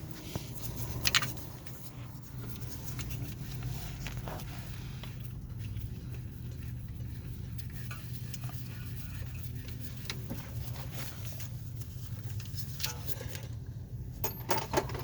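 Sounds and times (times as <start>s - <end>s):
steady low hum: 0.0s - 15.0s
hand tools clinking on metal: 14.2s - 15.0s.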